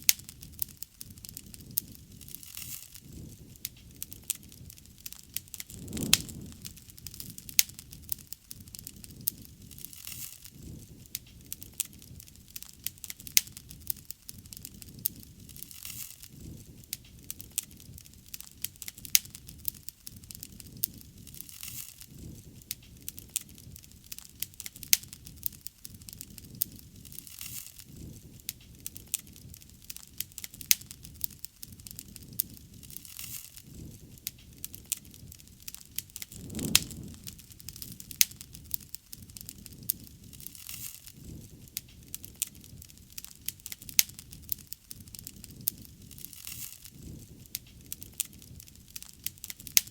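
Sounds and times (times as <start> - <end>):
burning wood crackling and popping: 0.0 - 49.9
low rush of flame: 3.1 - 12.5, 36.0 - 48.7.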